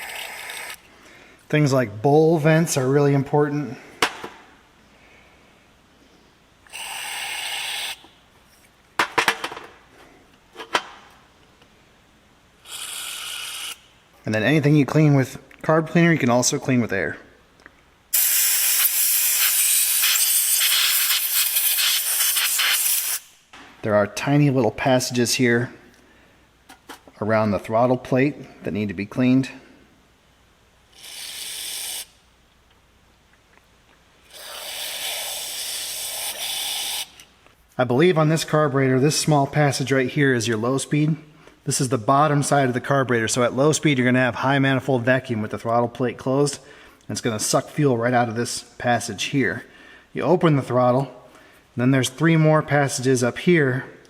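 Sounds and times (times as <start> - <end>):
aerosol spray hiss: 18.2 - 23.4.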